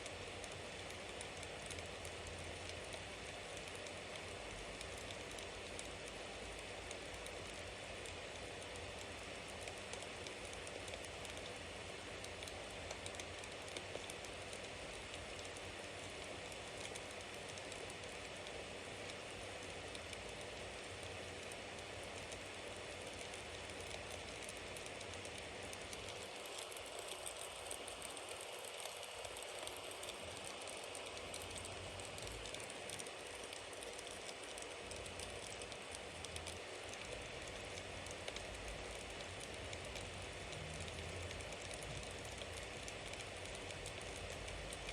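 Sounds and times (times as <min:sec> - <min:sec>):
burning wood crackling and popping: 0:00.4 - 0:44.9.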